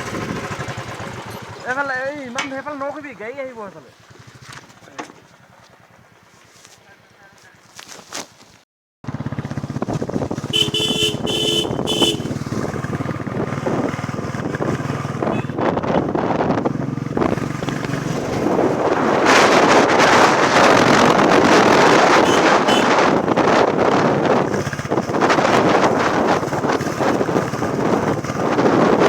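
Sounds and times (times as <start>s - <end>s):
motorcycle engine running: 0.0s - 3.4s, 4.0s - 6.4s, 9.0s - 29.0s
wind rushing over microphone: 9.6s - 29.0s
horn toots: 10.5s - 12.4s, 22.1s - 23.4s.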